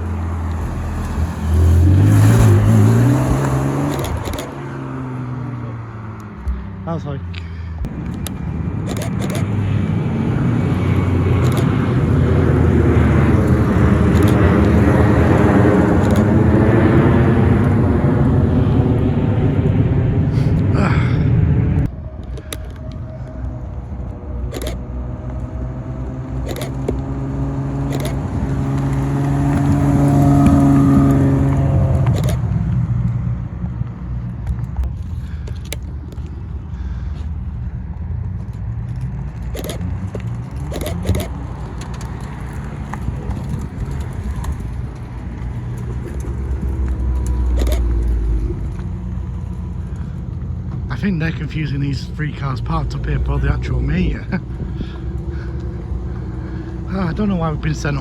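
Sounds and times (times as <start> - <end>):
cars driving past: 0.0 - 58.0
sharp clicks: 2.1 - 4.6, 7.3 - 9.6, 11.4 - 11.8, 13.4 - 14.9, 15.9 - 16.4, 22.1 - 23.6, 24.4 - 25.6, 26.4 - 27.1, 27.8 - 31.1, 32.0 - 33.2, 38.5 - 48.9.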